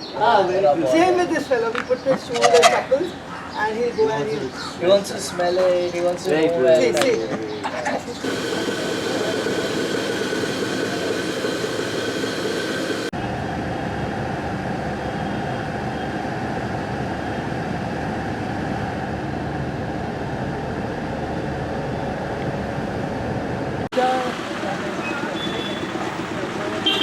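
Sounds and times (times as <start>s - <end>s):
moving vehicle rumbling: 8.0s - 13.1s, 21.5s - 27.0s.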